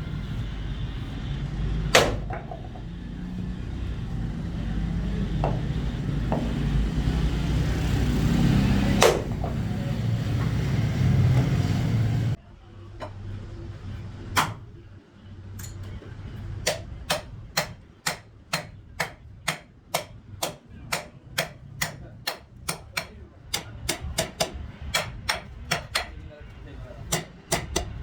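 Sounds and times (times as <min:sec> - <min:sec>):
loud steady rumble: 0:00.0 - 0:28.0
hammer blows: 0:04.0 - 0:12.2.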